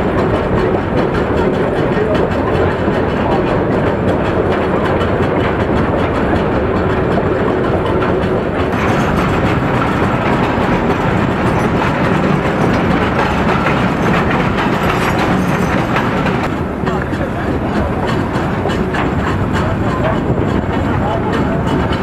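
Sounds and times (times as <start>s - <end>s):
train wheels on rails: 0.0s - 22.0s.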